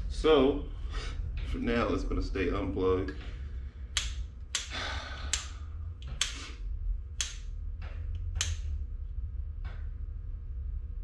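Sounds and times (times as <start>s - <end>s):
low steady hum: 0.0s - 11.0s
sharp clicks and taps: 4.0s - 6.5s, 7.2s - 7.5s, 8.1s - 8.8s.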